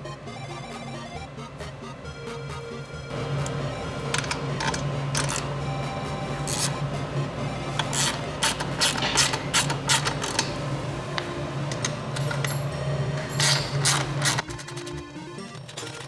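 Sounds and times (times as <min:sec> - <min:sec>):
ratchet wrench clicking: 0:04.1 - 0:05.5, 0:06.4 - 0:06.8, 0:07.8 - 0:10.6, 0:11.7 - 0:14.5.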